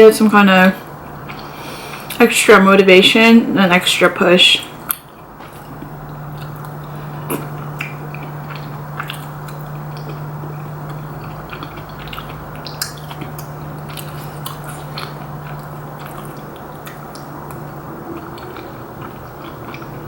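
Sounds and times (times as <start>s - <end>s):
steady low hum: 0.0s - 20.0s
person chewing with wet mouth clicks: 1.3s - 2.2s, 4.9s - 20.0s.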